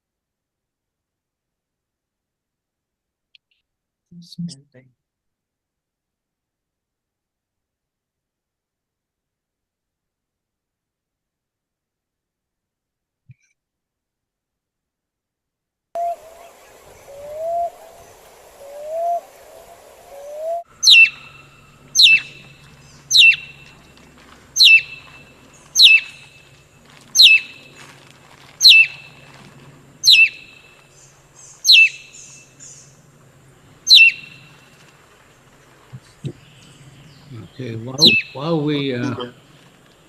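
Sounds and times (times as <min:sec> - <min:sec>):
low rising bird notes: 0:16.0 - 0:34.8, 0:35.4 - 0:39.9
sharp falling bird calls: 0:16.0 - 0:40.0.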